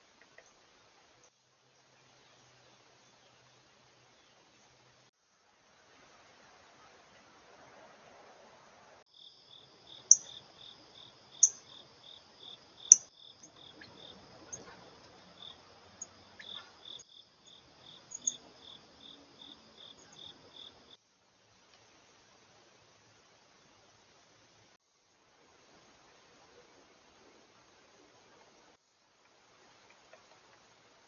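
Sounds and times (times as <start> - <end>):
insects chirping: 9.1 - 24.0.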